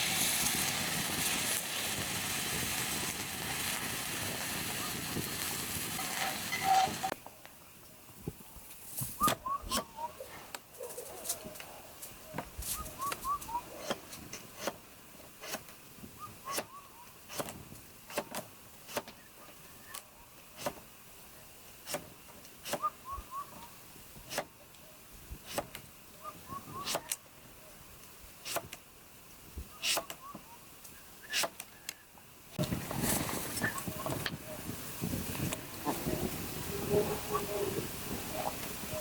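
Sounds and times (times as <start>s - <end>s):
wood fire crackling and popping: 0.0s - 7.6s, 32.6s - 36.7s
bird call rising notes: 9.2s - 10.4s, 12.8s - 13.8s, 22.8s - 23.7s.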